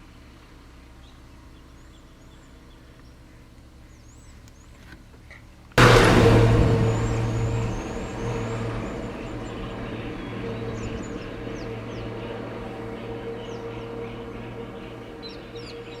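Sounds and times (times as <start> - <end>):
truck engine running: 5.8 - 16.0.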